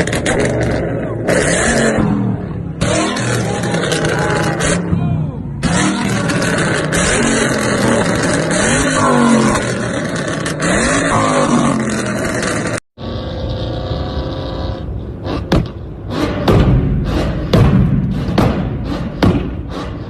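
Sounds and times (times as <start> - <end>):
car exhaust revving: 0.0 - 20.0
steady engine sound: 0.0 - 20.0
sharp knocks: 15.5 - 19.9.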